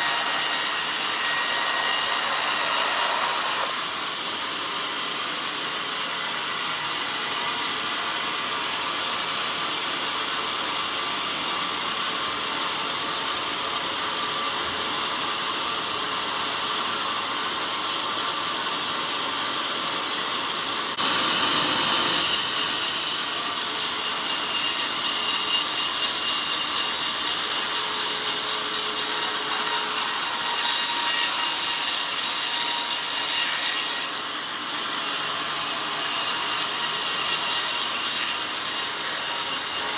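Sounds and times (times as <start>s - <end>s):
band saw blade cutting log: 0.0s - 3.8s, 21.0s - 39.9s.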